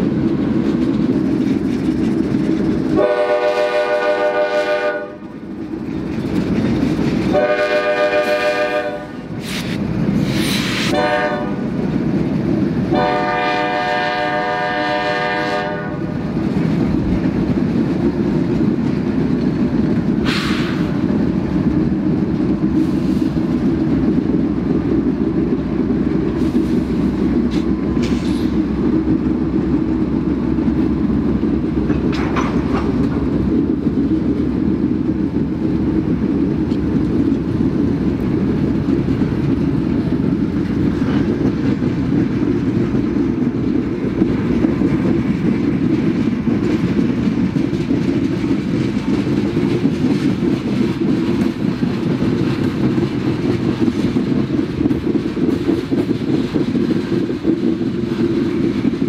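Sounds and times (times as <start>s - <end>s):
freight train cars rumbling: 0.0s - 59.0s
locomotive horn blasts: 3.0s - 5.2s, 7.3s - 9.2s, 10.9s - 11.6s, 12.9s - 16.1s.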